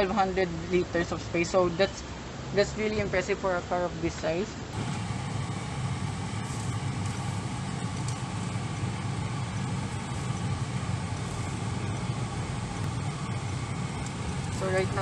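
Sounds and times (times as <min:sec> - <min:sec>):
car engine humming: 0:04.8 - 0:15.0.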